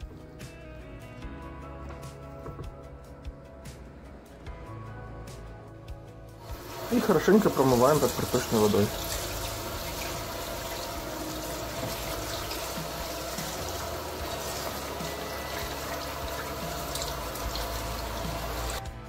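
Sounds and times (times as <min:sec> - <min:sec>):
tap water running into sink: 0:06.4 - 0:18.8.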